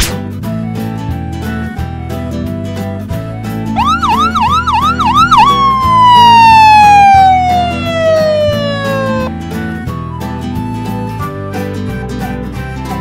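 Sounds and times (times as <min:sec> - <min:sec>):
cartoon ambulance siren: 0:03.7 - 0:09.3.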